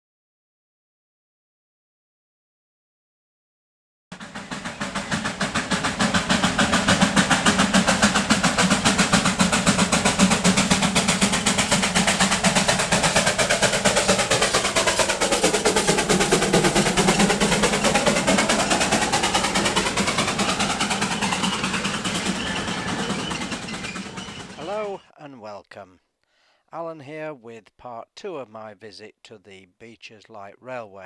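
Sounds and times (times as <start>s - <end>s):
steam locomotive exhaust beats: 4.1s - 25.0s.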